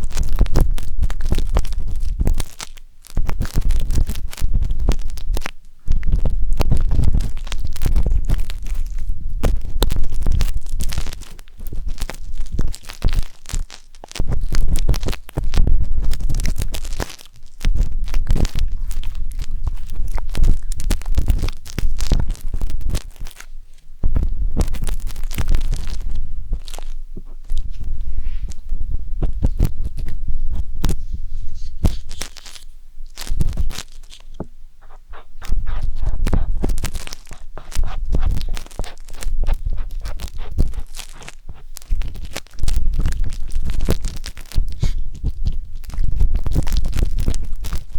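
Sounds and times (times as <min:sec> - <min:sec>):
wooden skewer scraping microphone: 0:16.4 - 0:47.9
low rumbles: 0:24.0 - 0:41.1.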